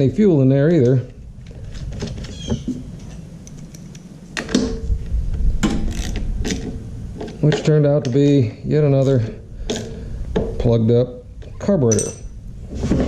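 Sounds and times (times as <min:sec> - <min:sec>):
low steady rumble: 0:00.0 - 0:13.0
tools and metal parts clicking: 0:02.0 - 0:04.7, 0:05.7 - 0:06.7, 0:11.9 - 0:12.4
metal clanks: 0:11.8 - 0:12.4.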